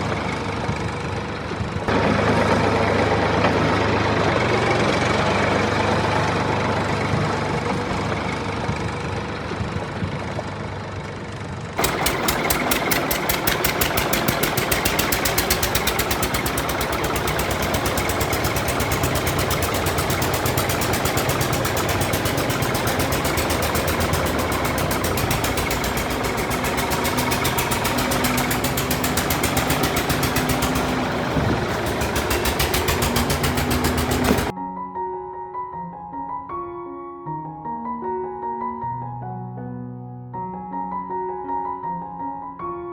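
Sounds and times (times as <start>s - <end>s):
tractor engine idling and knocking: 0.0s - 34.5s.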